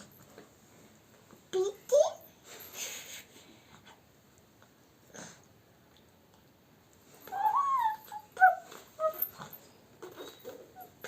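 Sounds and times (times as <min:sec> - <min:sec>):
dog whining: 0:07.2 - 0:11.0
dog whimpering: 0:07.3 - 0:09.6.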